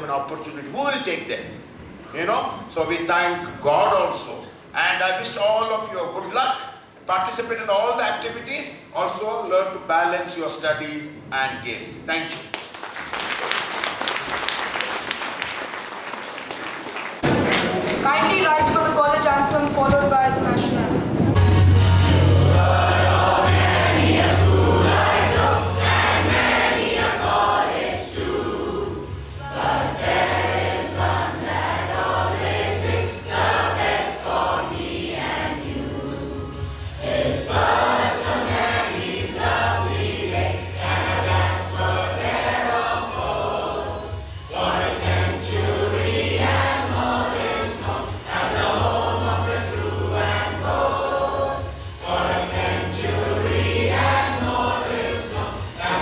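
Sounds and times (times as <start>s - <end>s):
choir singing with accompaniment: 21.4s - 56.0s.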